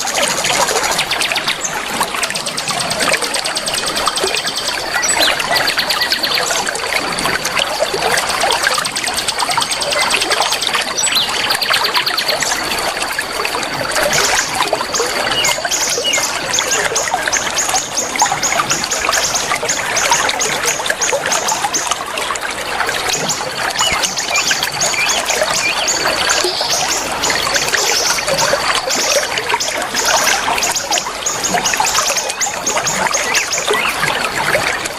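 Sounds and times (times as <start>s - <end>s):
trickling water: 0.0s - 34.9s
small birds chirping: 23.1s - 34.9s.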